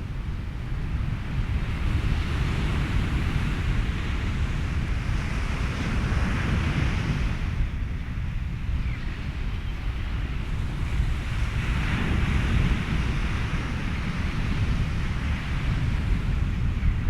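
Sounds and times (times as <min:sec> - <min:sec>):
constant low rumble: 0:00.0 - 0:17.0
ocean surf: 0:00.0 - 0:17.0
wind: 0:00.0 - 0:17.0.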